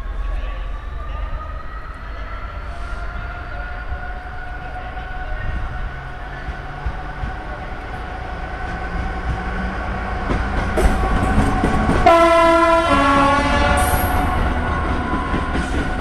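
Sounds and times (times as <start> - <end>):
train rumbling past: 0.0 - 16.0
two-tone train horn: 12.0 - 15.3.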